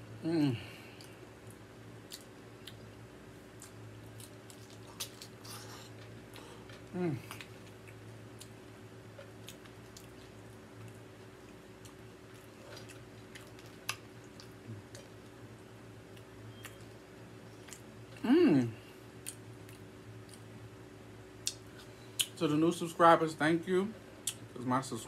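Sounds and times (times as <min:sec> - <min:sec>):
low steady hum: 0:00.0 - 0:25.0
person humming: 0:00.2 - 0:00.9, 0:06.9 - 0:07.4, 0:18.2 - 0:18.9
chewing crunches and clicks: 0:00.9 - 0:15.3, 0:16.0 - 0:18.2, 0:19.2 - 0:20.5, 0:24.2 - 0:24.5.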